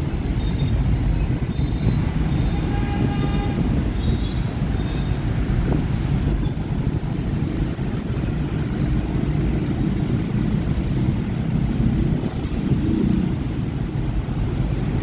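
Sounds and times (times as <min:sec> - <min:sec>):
motorbike traffic rumble: 0:00.0 - 0:15.0.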